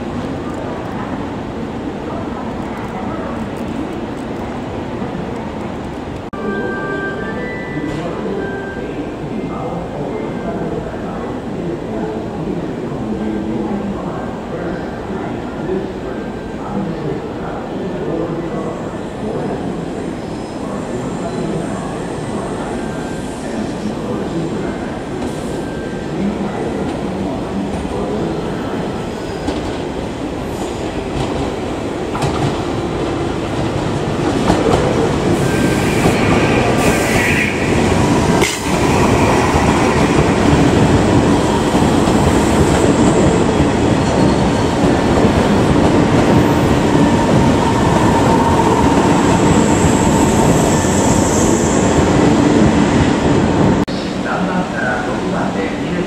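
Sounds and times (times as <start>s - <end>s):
electric train passing: 33.3s - 55.7s.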